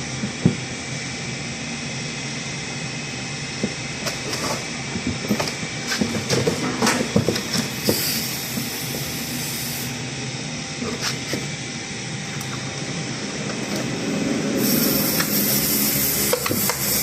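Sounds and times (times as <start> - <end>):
steady gas hiss: 7.5 - 10.0, 14.4 - 17.0
loud high gas hiss burst: 7.8 - 10.0, 14.5 - 17.0.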